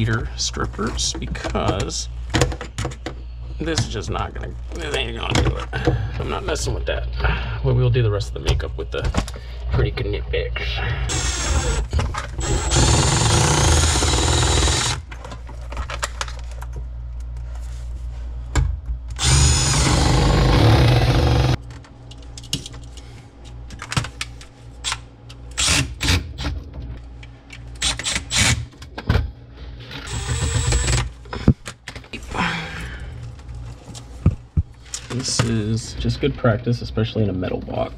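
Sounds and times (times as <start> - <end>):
power drill running: 11.1 - 15.0, 19.2 - 21.6, 30.1 - 31.1.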